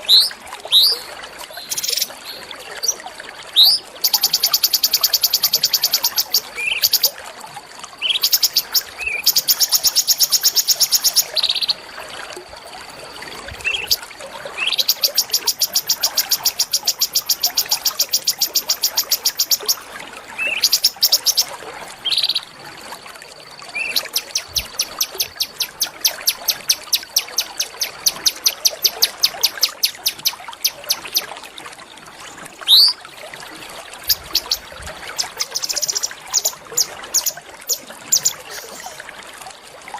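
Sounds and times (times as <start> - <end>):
songbird trilling: 1.6 - 2.1, 3.6 - 7.1, 8.0 - 11.8, 14.6 - 19.8, 20.4 - 21.5, 23.7 - 31.3, 32.7 - 33.0, 34.1 - 34.6, 35.2 - 39.0.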